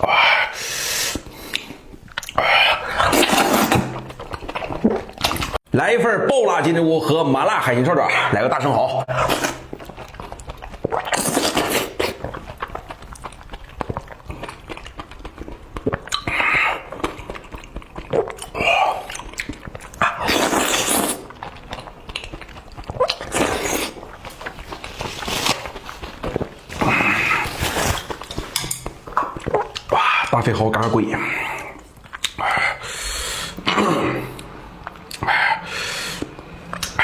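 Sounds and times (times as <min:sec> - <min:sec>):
person slurping and eating: 0:00.0 - 0:05.6, 0:07.9 - 0:30.5.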